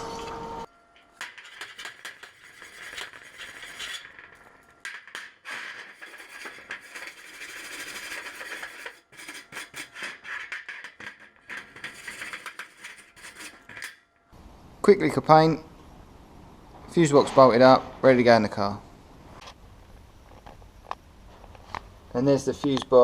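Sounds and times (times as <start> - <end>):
wire brush scrubbing metal: 1.2 - 14.1.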